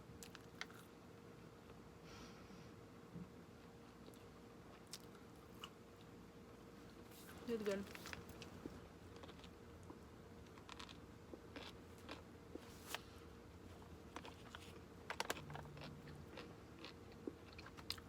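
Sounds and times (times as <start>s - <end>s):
mouth chewing clicks and crunches: 0.2s - 0.9s, 9.1s - 12.3s, 14.0s - 18.0s.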